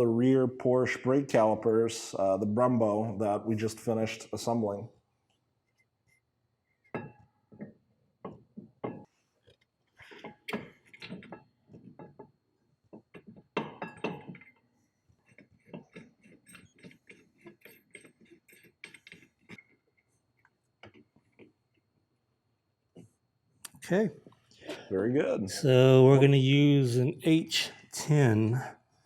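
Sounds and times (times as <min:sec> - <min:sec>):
metal tools clinking and clicking: 0:15.7 - 0:19.8.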